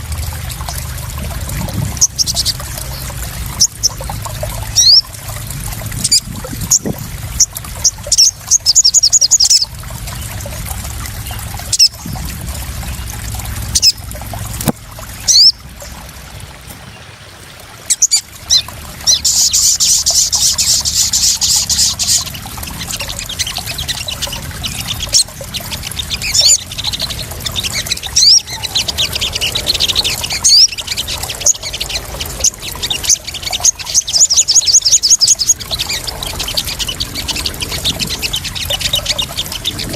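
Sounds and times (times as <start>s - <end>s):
water splashing and trickling: 0.0s - 39.9s
small bird chirping and trilling: 1.8s - 5.2s, 6.0s - 10.4s, 11.2s - 12.0s, 13.7s - 14.0s, 15.2s - 15.6s, 17.9s - 39.9s.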